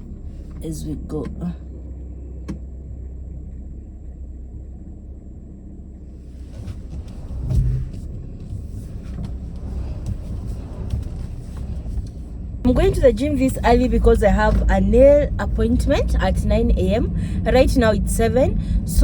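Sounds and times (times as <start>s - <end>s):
car engine rumble: 0.0s - 19.0s
tyre and road noise: 6.0s - 19.0s
low thump: 6.6s - 13.1s.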